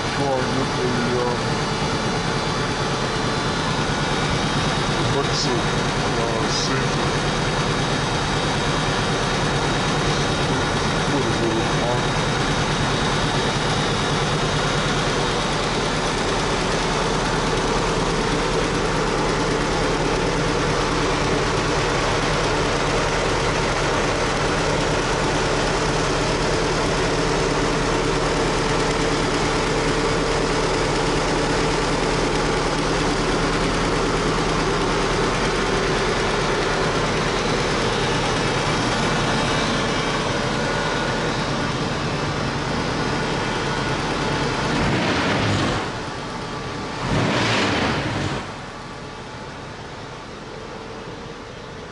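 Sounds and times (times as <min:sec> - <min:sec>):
helicopter engine running steadily: 0:00.0 - 0:51.9.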